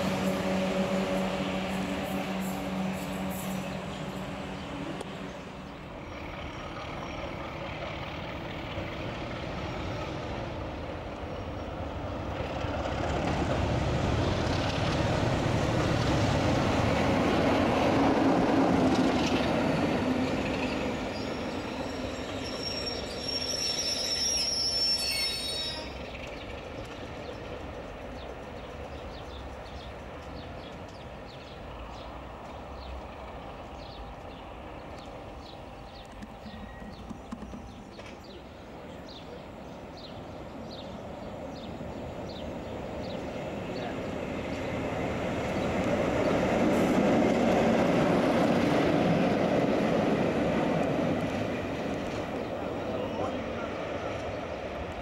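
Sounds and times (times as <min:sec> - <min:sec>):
train passing on track: 0:00.0 - 0:55.0
high-pitched wheel squeal: 0:21.1 - 0:26.0.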